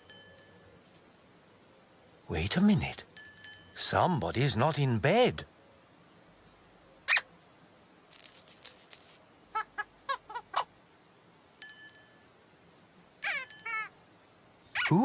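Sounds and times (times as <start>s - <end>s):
rattle shaken: 8.1s - 9.2s
bright bell-like chime: 11.6s - 12.3s.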